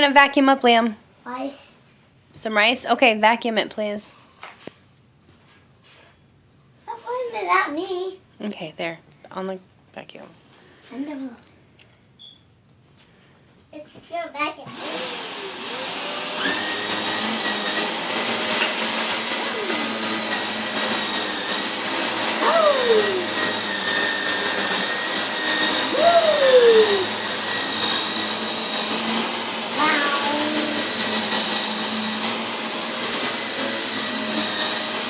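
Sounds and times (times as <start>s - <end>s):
vacuum cleaner running: 14.7s - 35.0s
vacuum sucking up rice: 14.8s - 35.0s.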